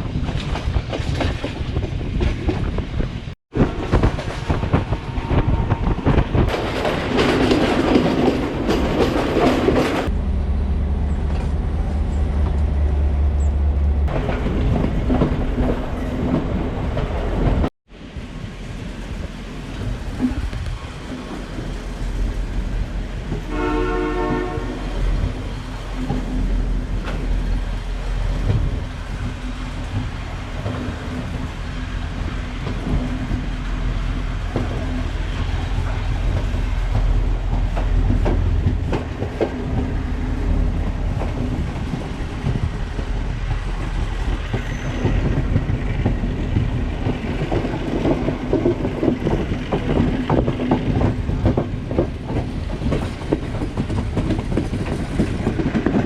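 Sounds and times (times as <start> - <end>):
train wheels clacking over rails: 0.0 - 10.2, 19.1 - 56.0
locomotive horn: 23.4 - 25.1.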